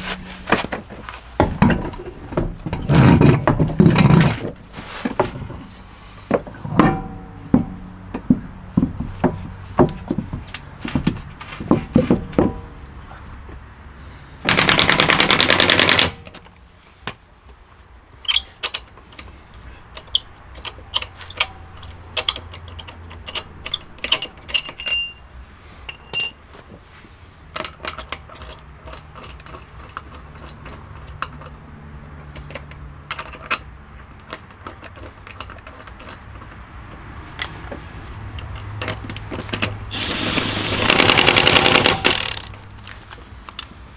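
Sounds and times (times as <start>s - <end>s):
tools clicking and knocking: 0.0s - 12.9s, 14.5s - 17.2s, 18.2s - 26.8s, 27.5s - 43.8s
rapid clicking burst: 14.5s - 16.2s, 39.9s - 42.5s.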